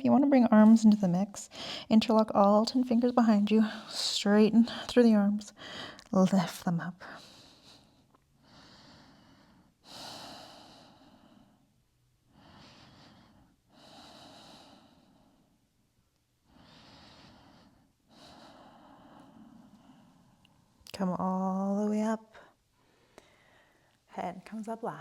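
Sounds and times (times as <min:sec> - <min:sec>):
slow breathing: 0:01.5 - 0:01.9, 0:05.6 - 0:06.1, 0:07.0 - 0:11.7, 0:12.3 - 0:15.6, 0:16.4 - 0:20.6, 0:22.4 - 0:24.0.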